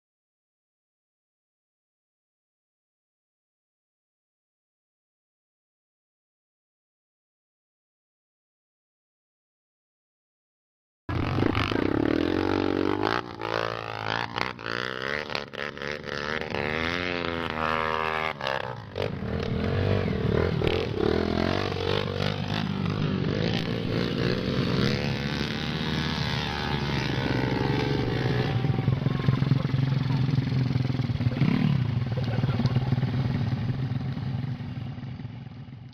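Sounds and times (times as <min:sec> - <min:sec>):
motorcycle engine revving: 0:11.1 - 0:35.9.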